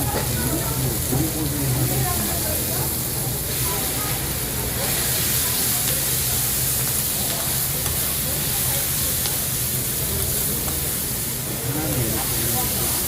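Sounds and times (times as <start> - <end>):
food sizzling on grill pan: 0.0 - 13.0.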